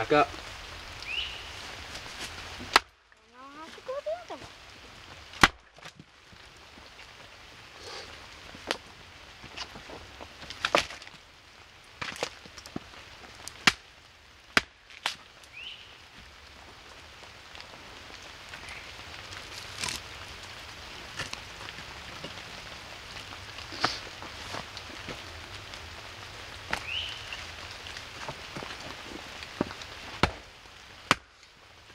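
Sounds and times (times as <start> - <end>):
rain pattering: 0.0 - 31.9
axe splitting wood: 30.2 - 30.4, 31.1 - 31.3.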